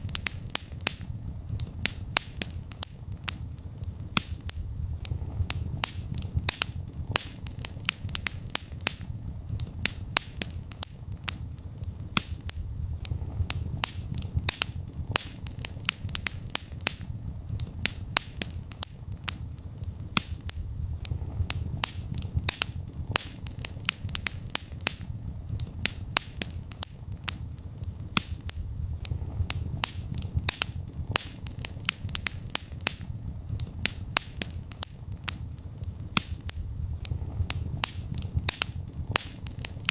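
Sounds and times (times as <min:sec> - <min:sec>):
flame rumble: 0:00.0 - 0:39.9
wood fire crackling: 0:00.0 - 0:39.9.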